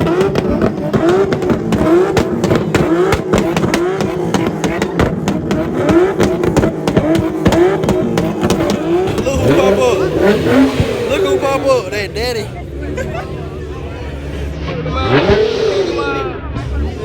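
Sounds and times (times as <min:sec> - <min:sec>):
sharp pops and clicks: 0:00.0 - 0:09.6
car engines revving: 0:00.0 - 0:17.0
crowd noise: 0:00.0 - 0:17.0
pulsing sound: 0:05.4 - 0:12.7.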